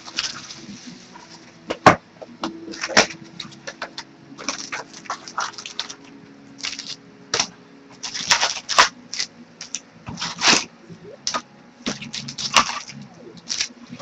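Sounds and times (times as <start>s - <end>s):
card packaging crinkling and ripping: 0.0s - 1.4s, 4.4s - 10.7s, 11.3s - 14.0s.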